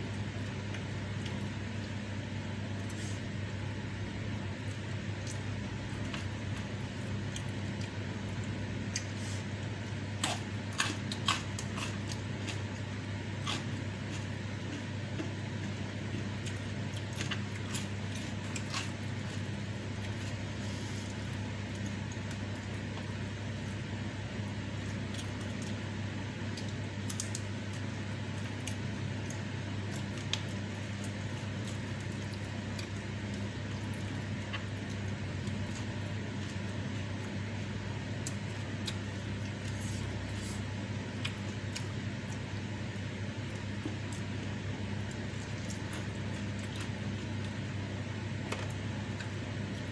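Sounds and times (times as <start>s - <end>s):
steady low hum: 0.0s - 49.9s
wet chewing with clicks: 26.5s - 37.4s, 38.1s - 40.6s, 41.2s - 47.6s.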